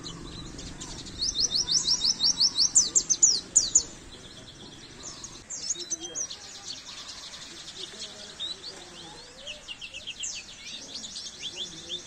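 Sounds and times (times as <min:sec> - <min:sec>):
bird singing high rising chirps: 0:00.0 - 0:12.0.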